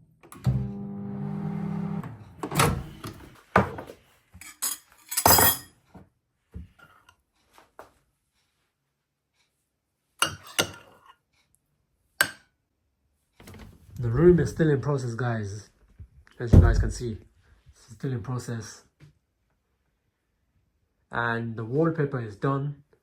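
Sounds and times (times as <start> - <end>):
knocks and clinks of objects: 4.4 - 5.7.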